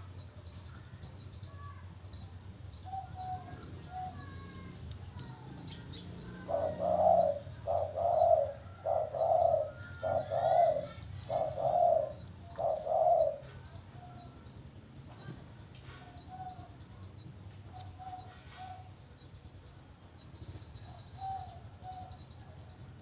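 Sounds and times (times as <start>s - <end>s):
small birds chirping: 0.0s - 23.0s
dove cooing: 0.8s - 14.2s, 20.6s - 23.0s.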